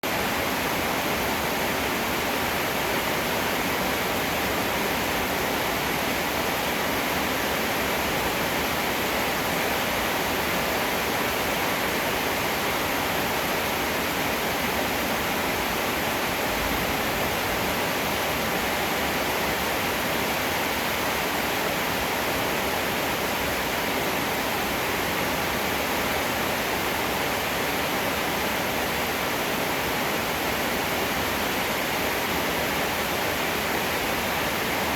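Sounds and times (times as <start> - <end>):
heavy rain: 0.0 - 34.9.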